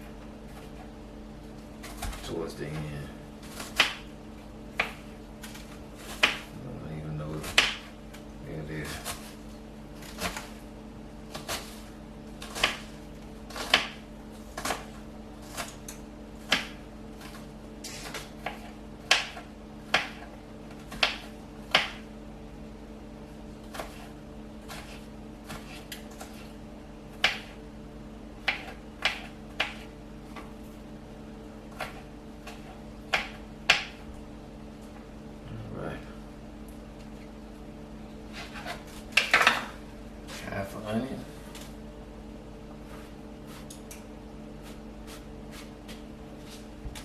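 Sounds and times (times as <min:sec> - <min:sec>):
steady low hum: 0:00.0 - 0:47.0
knife chopping on cutting board: 0:01.8 - 0:04.1, 0:04.7 - 0:06.6, 0:07.2 - 0:09.4, 0:10.0 - 0:10.6, 0:11.3 - 0:22.1, 0:23.6 - 0:26.5, 0:27.1 - 0:27.6, 0:28.4 - 0:30.6, 0:31.7 - 0:34.1, 0:38.3 - 0:40.4, 0:44.6 - 0:47.0.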